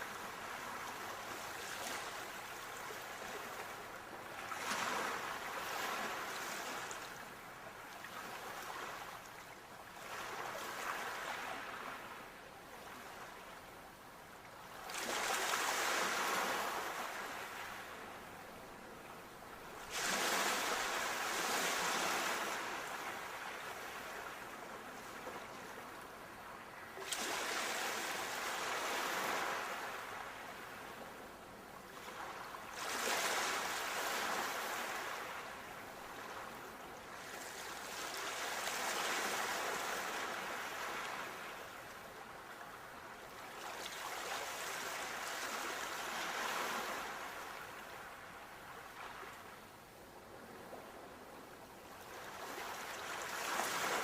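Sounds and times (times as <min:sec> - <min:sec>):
sea waves breaking: 0:19.8 - 0:24.3.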